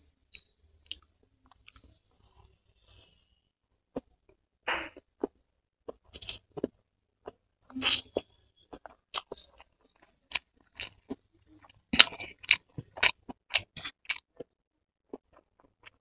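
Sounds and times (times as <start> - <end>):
chewing noodles: 5.0 - 16.0.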